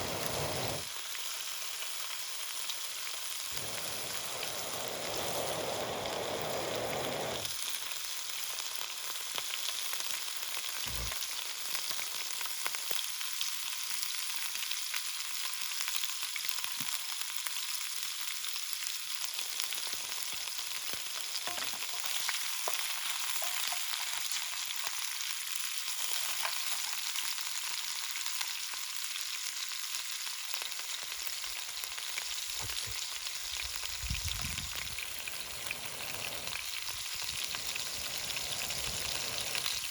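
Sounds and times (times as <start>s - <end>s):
food sizzling with crackles: 0.0s - 39.9s.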